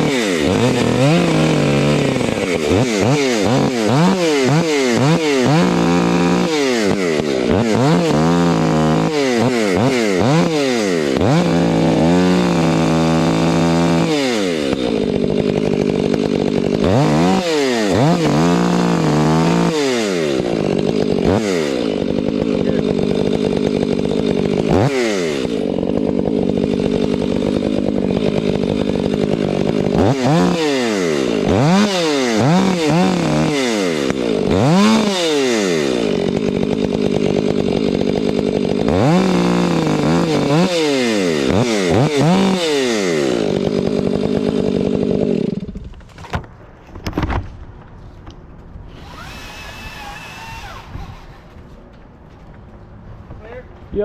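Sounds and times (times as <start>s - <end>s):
chainsaw revving and cutting wood: 0.0s - 46.5s, 48.9s - 51.7s.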